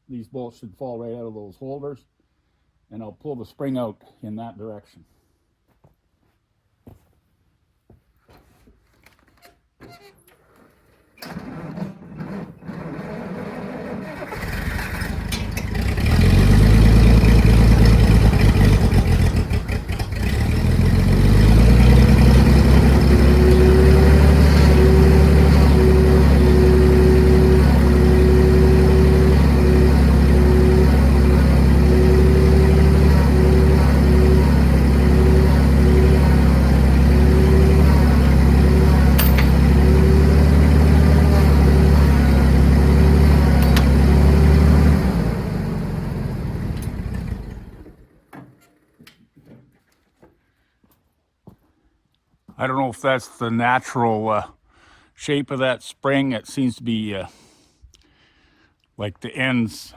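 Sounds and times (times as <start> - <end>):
forklift engine starting: 11.2 - 48.2
faint engine whine: 12.6 - 48.1.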